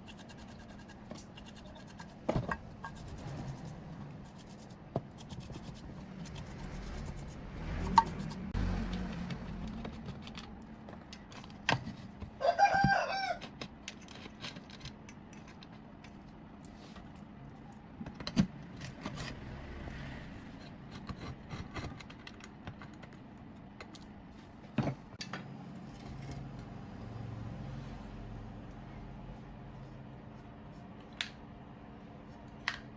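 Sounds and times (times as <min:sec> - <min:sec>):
rooster crowing: 0:12.4 - 0:13.5.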